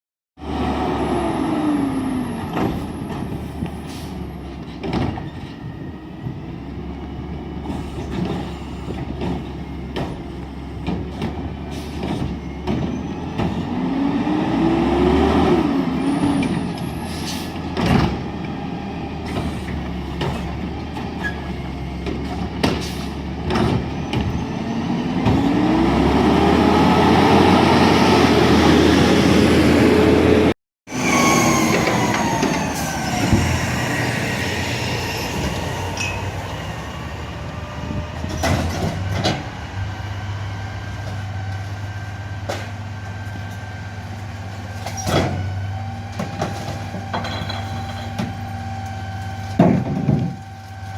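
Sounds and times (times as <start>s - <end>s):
garbage truck engine revving: 11.0s - 47.0s.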